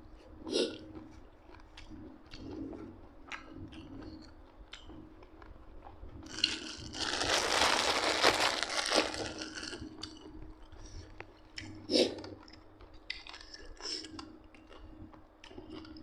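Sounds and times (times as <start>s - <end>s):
crinkling rustling noise: 6.3s - 10.0s.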